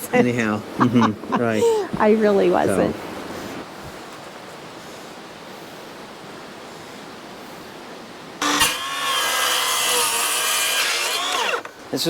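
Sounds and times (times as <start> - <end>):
power drill running: 8.4 - 11.7.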